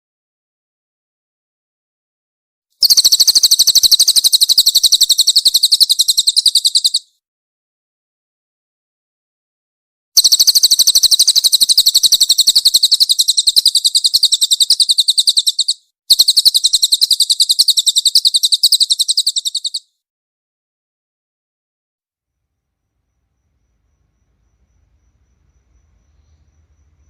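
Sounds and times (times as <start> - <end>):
songbird rapid high chirps: 2.8 - 7.1, 10.2 - 19.9.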